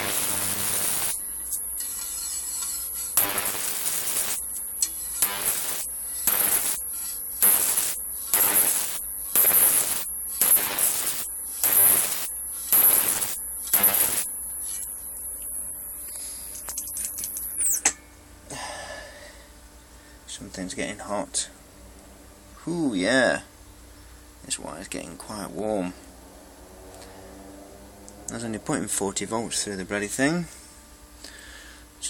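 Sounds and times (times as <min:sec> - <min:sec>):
high-voltage arcs buzzing: 0:00.0 - 0:18.0
high-pitched electrical whine: 0:00.0 - 0:18.6, 0:19.3 - 0:31.4.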